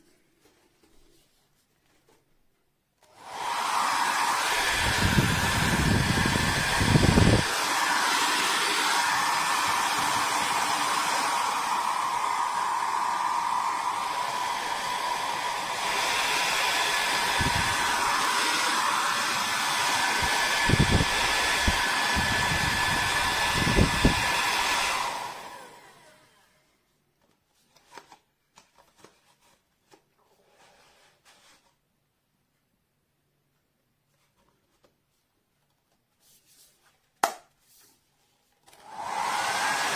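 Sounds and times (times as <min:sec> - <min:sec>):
hair dryer running: 0:03.0 - 0:26.5, 0:38.7 - 0:39.9.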